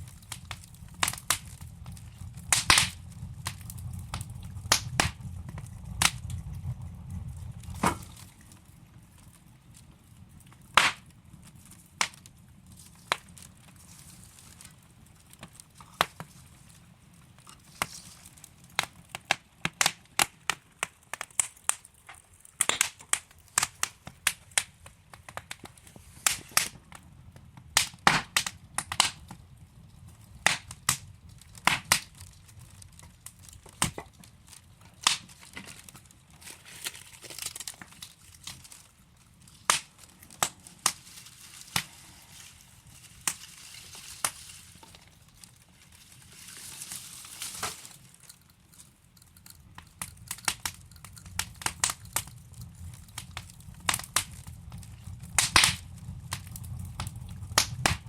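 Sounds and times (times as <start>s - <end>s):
low rumble: 0.0s - 9.2s, 50.8s - 58.0s
burning logs crackling: 0.0s - 58.0s.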